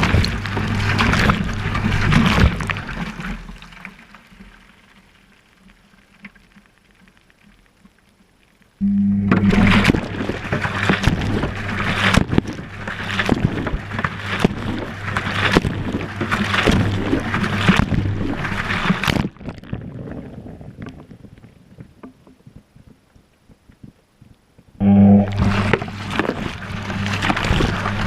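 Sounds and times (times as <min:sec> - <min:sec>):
washing machine motor hum: 0:00.0 - 0:02.9, 0:08.8 - 0:19.1, 0:24.8 - 0:28.0
water and laundry sloshing: 0:00.0 - 0:04.8, 0:09.4 - 0:23.0, 0:25.3 - 0:28.0
water dripping and trickling: 0:00.0 - 0:08.5.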